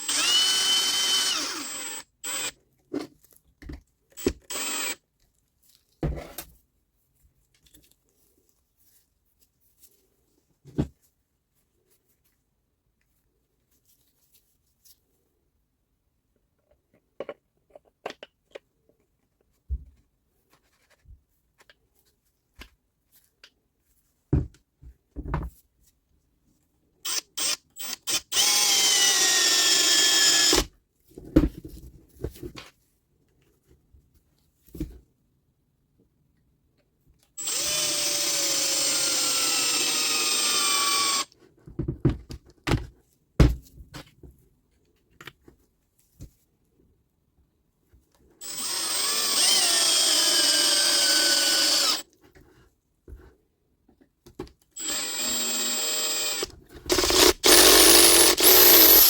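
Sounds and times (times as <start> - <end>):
electric power tool motor running: 0.0 - 2.5, 48.4 - 52.0, 54.8 - 59.0.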